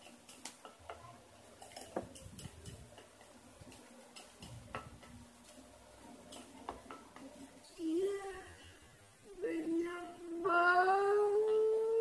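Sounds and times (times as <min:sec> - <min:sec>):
containers clicking and tapping: 0:00.0 - 0:05.6.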